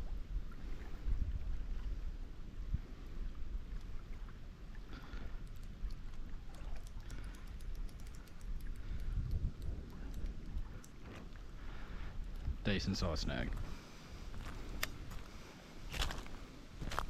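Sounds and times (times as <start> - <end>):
wind rumble on microphone: 0.0 - 4.6, 5.4 - 15.3
faint irregular clicking: 5.4 - 11.1.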